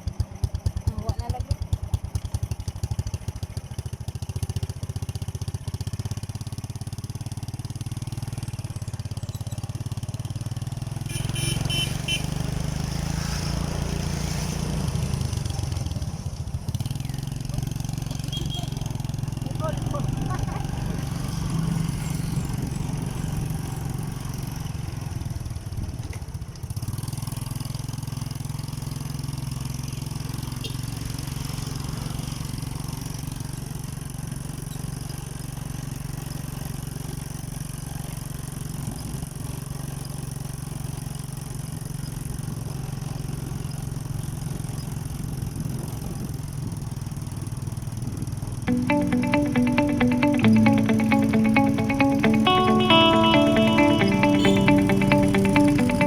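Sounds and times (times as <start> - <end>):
motorcycle engine running: 0.0 - 12.9, 15.0 - 34.6.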